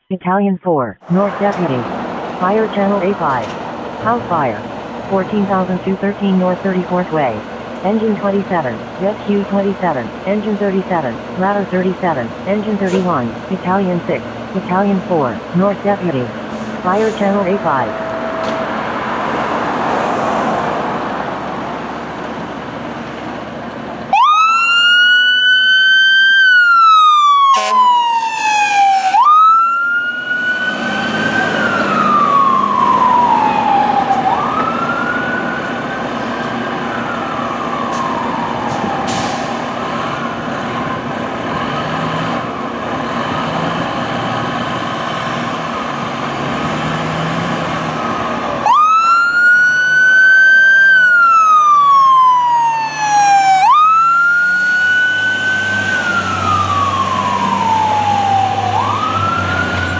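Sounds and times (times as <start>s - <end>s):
traffic noise: 0.0s - 59.9s
fire engine sirens wailing: 1.0s - 59.9s
loud siren blast: 16.2s - 21.4s, 24.1s - 41.0s, 44.8s - 59.9s.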